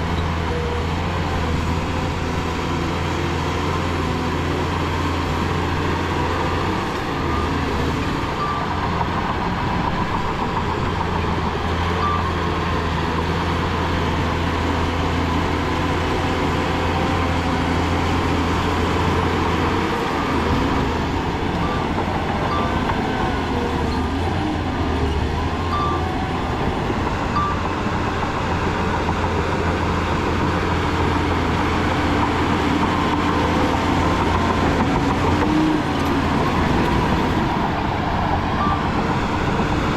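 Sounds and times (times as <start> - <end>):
diesel machinery engine hum: 0.0 - 39.9.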